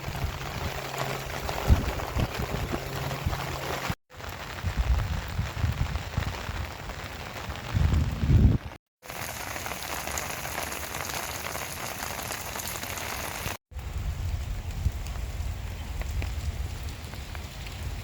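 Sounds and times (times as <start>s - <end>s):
gusty rumbles: 0.0s - 8.8s
rain falling steadily: 0.0s - 18.0s.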